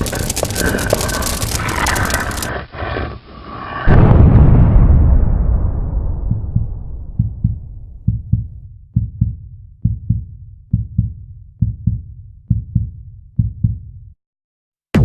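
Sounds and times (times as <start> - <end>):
low explosion rumble: 3.9 - 9.1
heartbeat thumps: 6.0 - 14.1.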